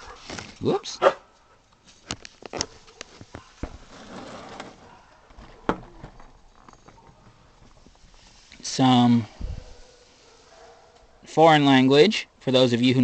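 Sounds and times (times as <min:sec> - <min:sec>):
soft rustle: 0:01.3 - 0:11.2.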